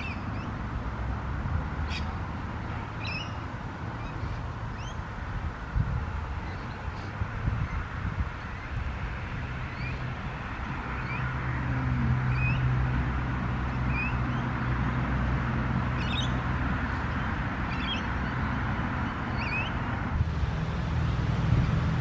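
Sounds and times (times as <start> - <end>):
bird chirping: 0.0 - 0.6, 3.0 - 3.4, 16.0 - 16.4, 17.7 - 19.8
wind rumble on microphone: 0.0 - 22.0.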